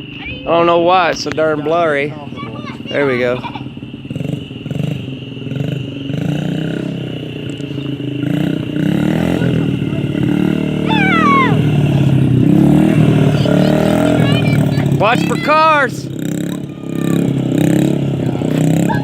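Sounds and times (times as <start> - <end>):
small motorcycle engine revving: 0.0 - 19.0
high falling squeal: 9.4 - 17.4.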